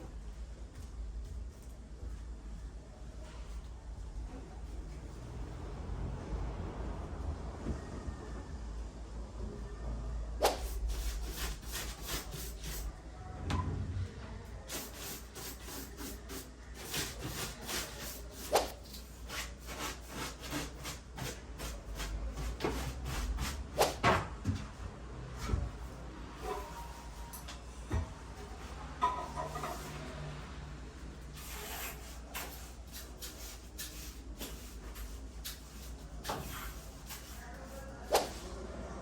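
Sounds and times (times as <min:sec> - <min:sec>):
broom bristles sweeping floor: 0:31.2 - 0:38.8.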